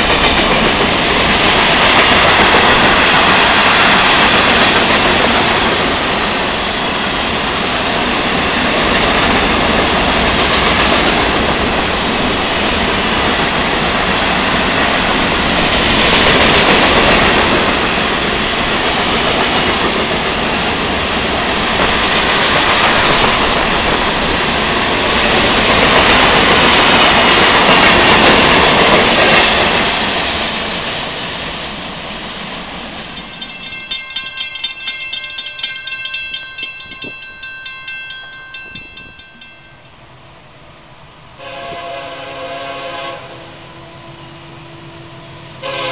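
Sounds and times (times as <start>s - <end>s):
train wheels rumbling on rails: 0.0s - 40.3s
ringing tone: 33.2s - 40.0s.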